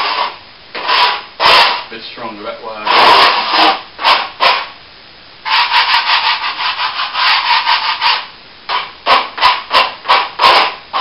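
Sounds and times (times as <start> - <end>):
hand tool rasping on plaster wall: 0.0 - 1.9, 2.8 - 4.7, 5.5 - 11.0.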